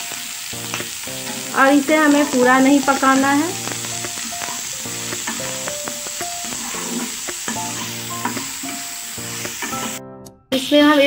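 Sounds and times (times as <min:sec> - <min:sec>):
vegetables sizzling in hot oil: 0:00.0 - 0:10.0
background music with held notes: 0:00.0 - 0:10.9
metal spatula scraping pan: 0:04.4 - 0:10.0.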